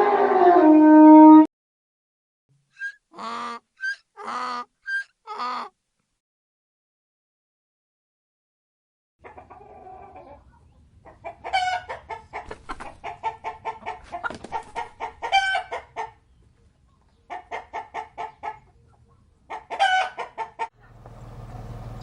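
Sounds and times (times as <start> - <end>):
chicken clucking: 2.8 - 5.7, 9.2 - 20.9
chicken squawking: 2.8 - 5.8, 9.2 - 16.2, 19.5 - 20.8.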